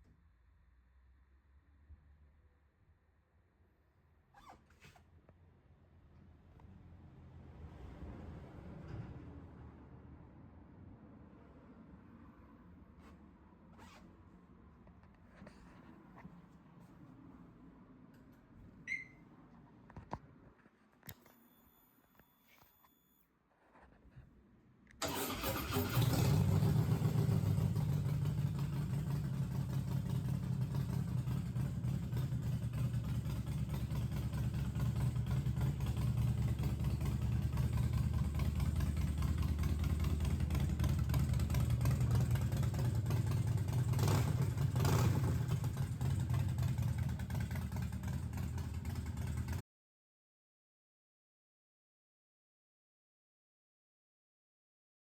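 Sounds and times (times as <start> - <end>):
motorcycle engine revving: 25.0 - 49.6
motorcycle engine idling: 25.3 - 49.6.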